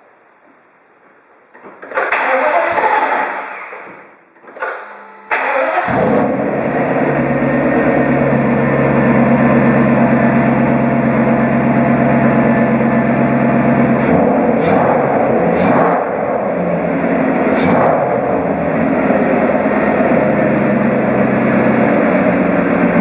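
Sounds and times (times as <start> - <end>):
car engine cranking: 1.8 - 3.8, 5.3 - 23.0
car engine idling: 5.4 - 23.0.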